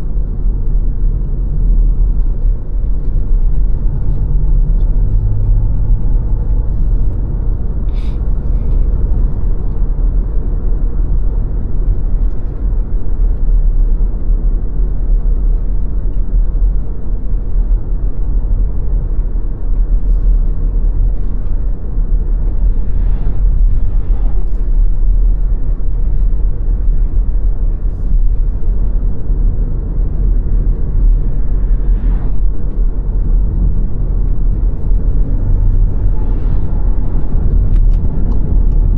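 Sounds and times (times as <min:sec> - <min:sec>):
car tyre and road noise: 0:00.0 - 0:38.9.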